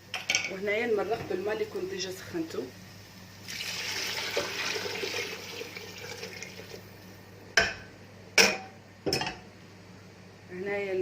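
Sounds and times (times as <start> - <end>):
water pouring into a pot: 3.4 - 7.0.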